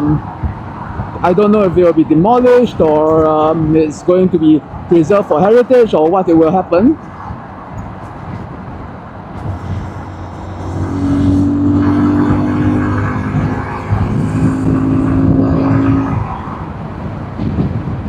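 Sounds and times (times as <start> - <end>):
wind and road noise: 0.0 - 18.0
motorcycle engine running: 9.3 - 16.9.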